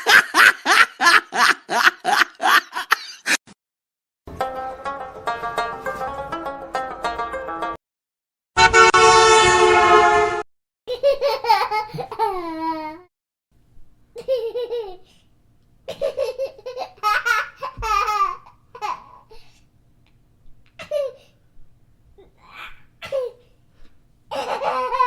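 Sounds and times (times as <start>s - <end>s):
loud horn-like blast: 8.6s - 10.5s.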